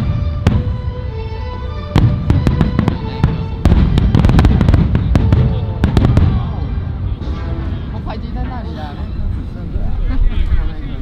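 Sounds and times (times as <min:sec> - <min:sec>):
fireworks booming and crackling: 0:00.0 - 0:08.6
music: 0:00.0 - 0:11.0.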